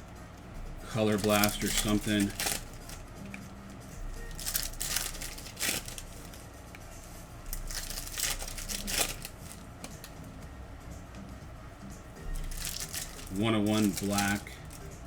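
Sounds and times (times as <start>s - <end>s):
foil wrappers tearing and crinkling: 0.9s - 3.4s, 4.1s - 6.4s, 7.5s - 10.1s, 12.3s - 14.9s.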